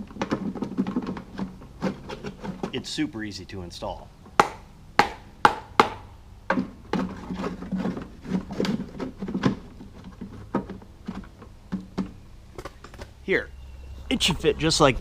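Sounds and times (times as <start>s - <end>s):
plastic insert clattering and rubbing: 0.0s - 2.8s, 6.6s - 13.1s
sharp knocks: 4.3s - 7.0s.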